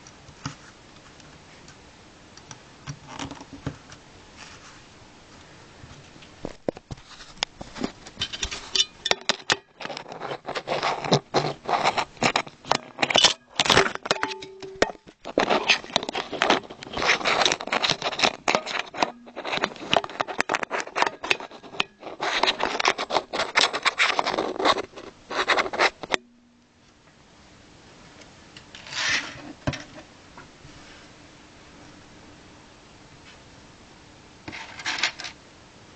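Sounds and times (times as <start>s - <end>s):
short rustle: 4.3s - 8.8s
plastic bricks rattling and clicking: 15.0s - 25.8s.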